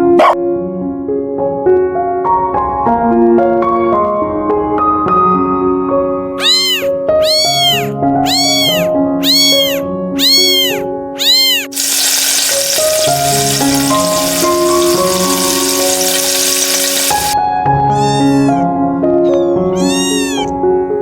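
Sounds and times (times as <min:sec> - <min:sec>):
gentle piano music: 0:00.0 - 0:21.0
cat meowing: 0:06.4 - 0:13.6, 0:14.2 - 0:20.7
steady sizzle: 0:11.7 - 0:17.4.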